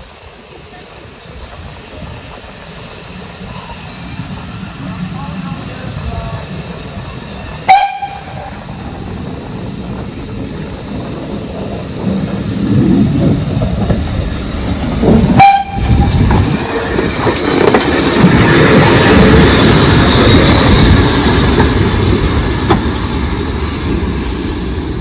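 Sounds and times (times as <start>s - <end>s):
train rumble: 0.0s - 25.0s
steam locomotive whistle toots: 7.6s - 8.7s, 15.3s - 16.2s.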